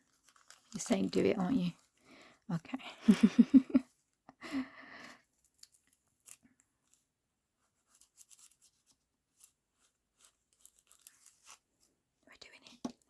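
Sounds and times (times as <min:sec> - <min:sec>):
paper rustling: 0:00.0 - 0:02.0, 0:05.5 - 0:12.0
scissors snipping paper: 0:10.2 - 0:11.8.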